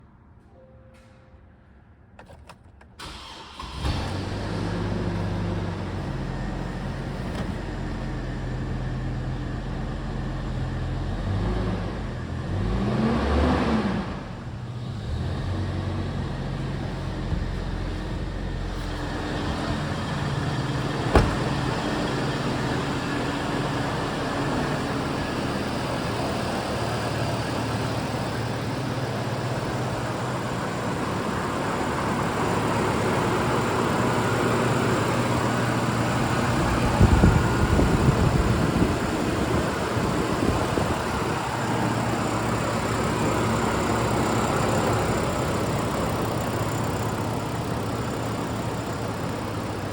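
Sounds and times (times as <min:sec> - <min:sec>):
truck engine running: 0:03.2 - 0:12.6, 0:14.2 - 0:49.9
low thumps: 0:16.6 - 0:22.7.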